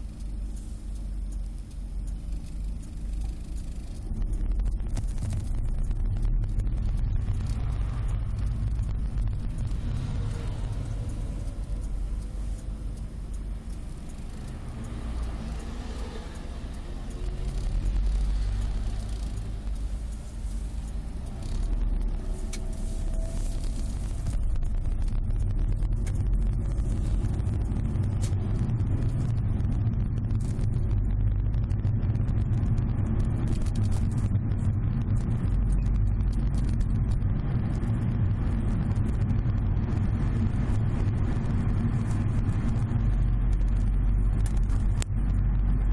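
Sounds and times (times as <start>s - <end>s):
rapid small rattling clicks: 0.0s - 39.5s, 40.1s - 45.9s
road rumble inside car: 0.0s - 45.9s.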